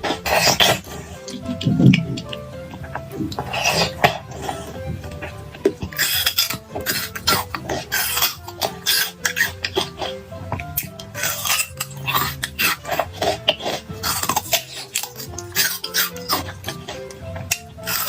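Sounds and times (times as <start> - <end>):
background music: 0.0 - 18.0
cutlery clinking against dishes: 14.0 - 18.0.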